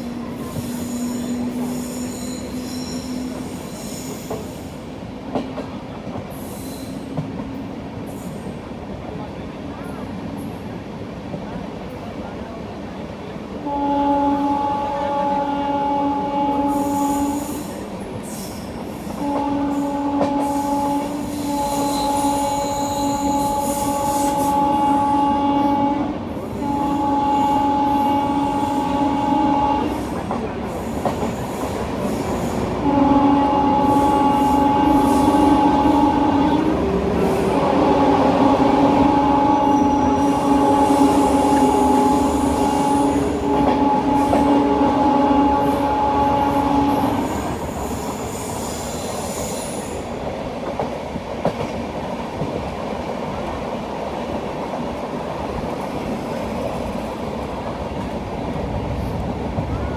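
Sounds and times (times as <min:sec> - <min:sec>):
train horn blasts: 0:00.0 - 0:04.7, 0:13.6 - 0:18.4, 0:19.1 - 0:50.1
train rumbling along track: 0:00.0 - 0:59.9.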